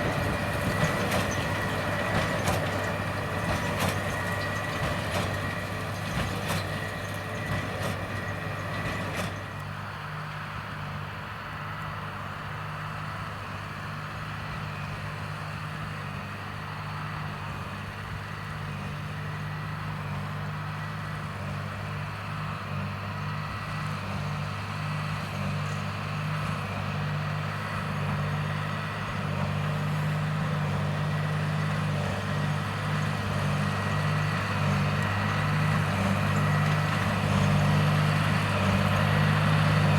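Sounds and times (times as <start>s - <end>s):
tractor engine under load: 0.0s - 39.9s.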